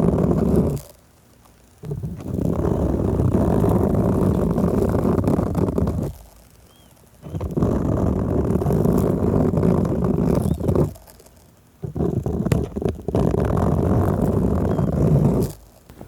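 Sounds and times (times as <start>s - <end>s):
hands rubbing on microphone: 0.0s - 0.9s, 1.8s - 6.5s, 7.2s - 16.0s.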